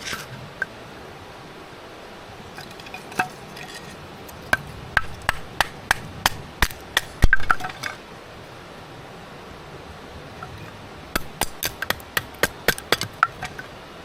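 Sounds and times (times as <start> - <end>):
blade chopping against wood: 4.5 - 7.8, 11.2 - 13.6.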